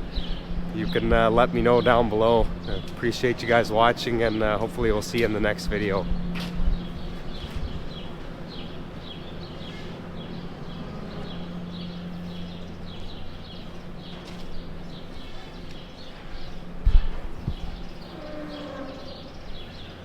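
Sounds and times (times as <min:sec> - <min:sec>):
small birds chirping: 0:00.0 - 0:20.0
steady low hum: 0:00.0 - 0:20.0.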